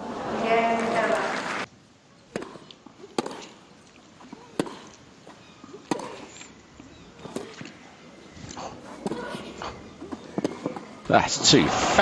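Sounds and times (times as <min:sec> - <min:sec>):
rackets hitting tennis ball: 0:02.2 - 0:11.1.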